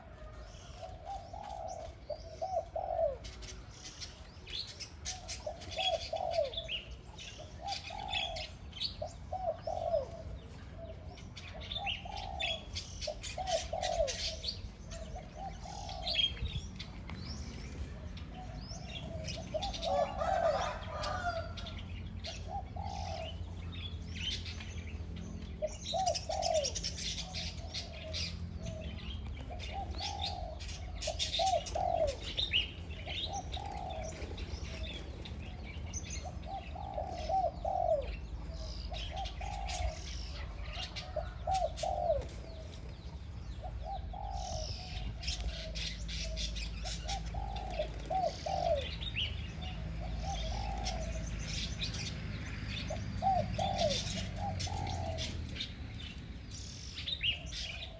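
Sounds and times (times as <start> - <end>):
dove cooing: 0.0 - 55.7, 57.0 - 57.9
small birds chirping: 0.0 - 57.9.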